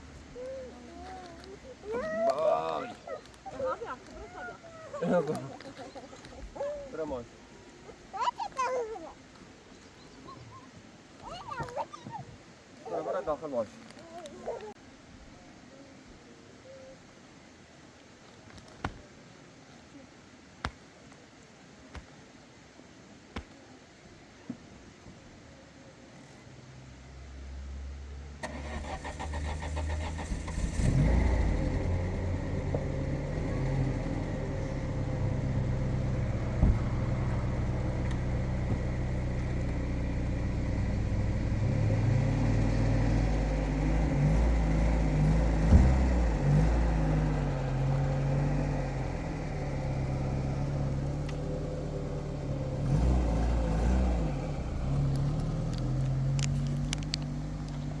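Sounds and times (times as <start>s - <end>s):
vehicle engine revving: 28.4s - 58.0s.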